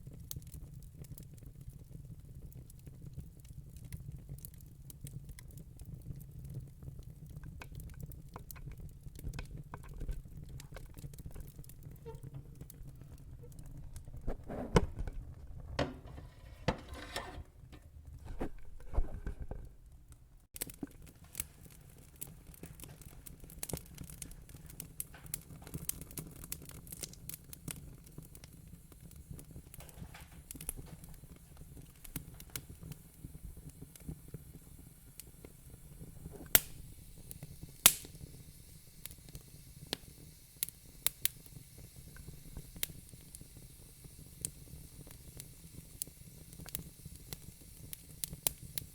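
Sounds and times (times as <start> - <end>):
wood fire crackling: 0.0 - 48.9
low hiss: 19.8 - 48.9
sharp pops and snaps: 20.5 - 48.9.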